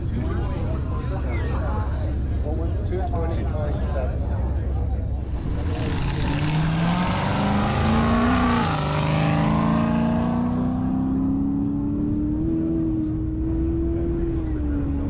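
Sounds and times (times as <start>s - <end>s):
car accelerating past: 5.3s - 14.4s.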